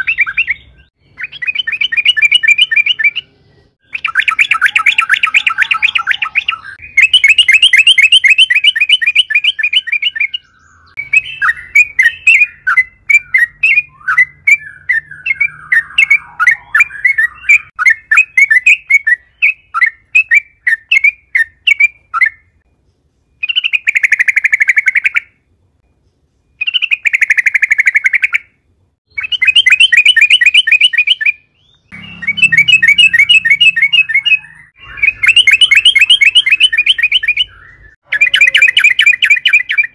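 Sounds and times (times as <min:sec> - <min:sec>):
bulbul singing rolling notes: 0:00.0 - 0:20.1, 0:29.1 - 0:39.9
bird chirps: 0:00.0 - 0:39.9.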